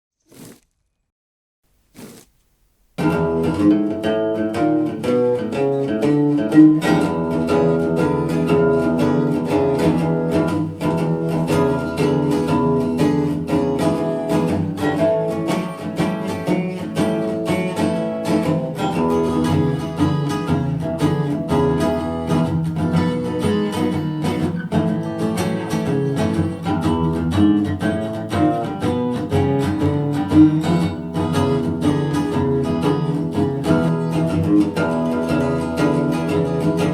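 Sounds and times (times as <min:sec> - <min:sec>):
guitar with quick plucked notes: 0:03.0 - 0:36.9.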